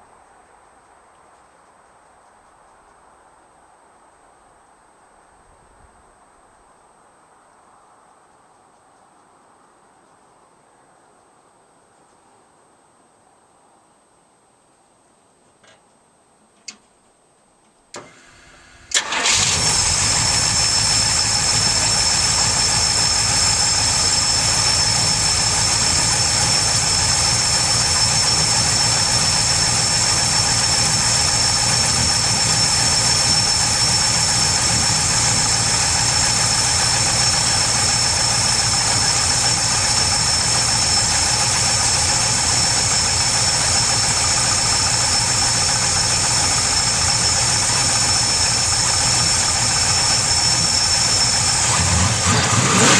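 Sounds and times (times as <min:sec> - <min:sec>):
car engine cranking and idling: 0:18.0 - 0:52.9.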